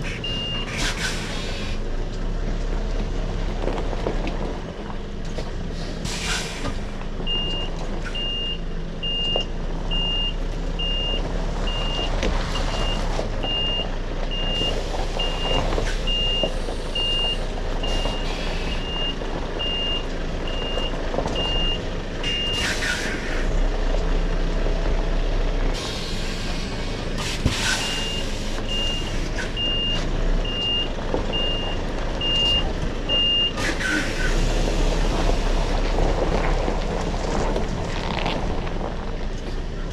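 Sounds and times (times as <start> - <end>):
diesel engine running low: 0.0 - 39.9
truck reversing alarm beeping: 0.2 - 0.8, 7.2 - 23.3, 27.7 - 35.4.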